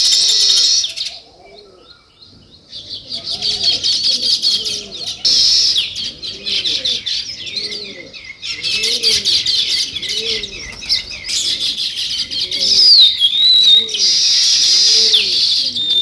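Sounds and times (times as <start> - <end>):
sparrows chirping: 0.0 - 16.0
bird low rising falling call: 2.8 - 16.0.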